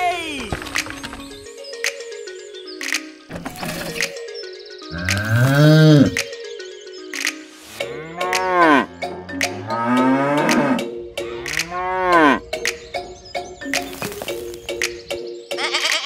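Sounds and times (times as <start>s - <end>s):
light background music: 0.0s - 16.0s
cows mooing: 4.9s - 6.2s, 7.8s - 12.5s.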